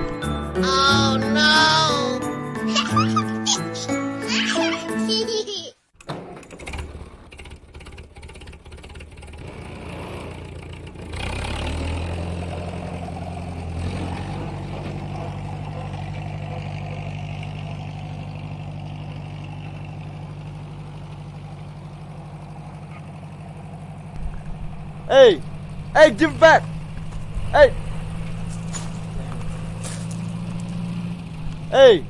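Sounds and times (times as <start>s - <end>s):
engine idling: 6.4s - 32.0s.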